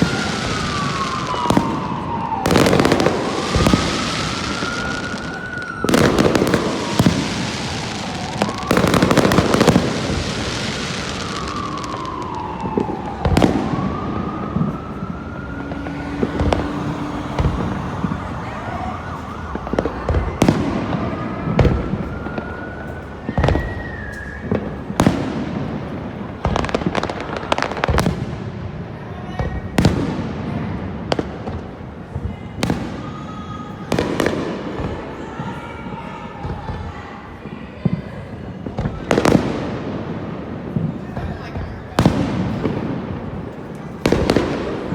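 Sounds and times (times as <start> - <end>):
fireworks booming: 0.0 - 37.5, 38.5 - 44.9
fireworks crackling: 0.0 - 44.9
whistle-like rising tone: 23.2 - 24.7.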